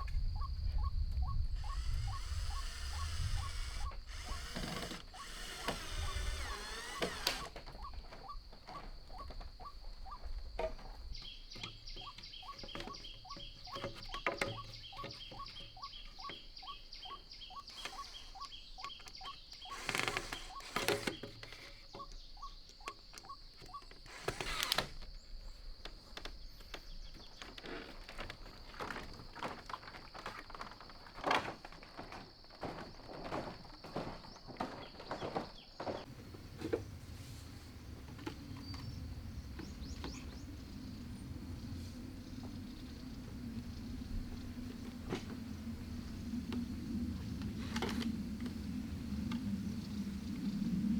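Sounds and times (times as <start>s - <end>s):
rapid repeated calls: 1.6s - 7.4s
high-pitched insect drone: 1.6s - 7.5s.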